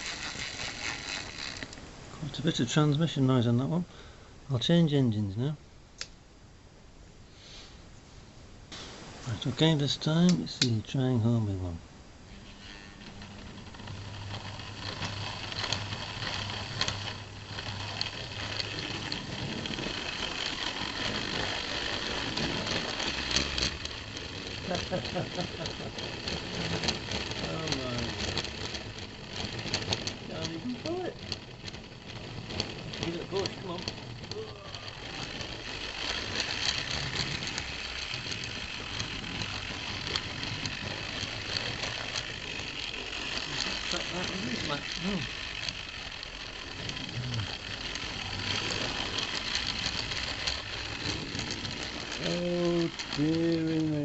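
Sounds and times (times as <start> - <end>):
model train motor whirring: 0.0 - 3.4, 9.9 - 54.0
wheels clicking on track: 0.0 - 3.5, 9.8 - 11.7, 12.3 - 54.0
low steady hum: 0.0 - 54.0.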